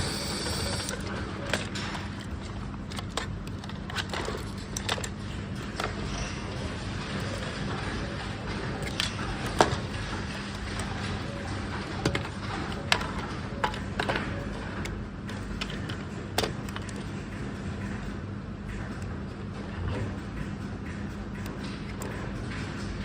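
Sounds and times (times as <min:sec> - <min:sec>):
plastic parts clicking and knocking: 0:00.0 - 0:18.1
steady low hum: 0:00.0 - 0:23.0.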